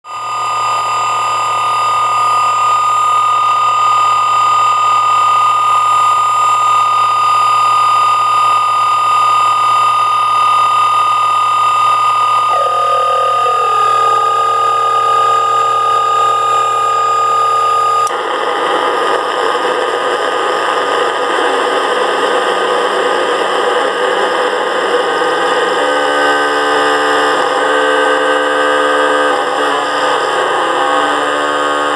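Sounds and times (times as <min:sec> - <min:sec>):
electronic drone music: 0:11.6 - 0:18.1, 0:25.3 - 0:31.9.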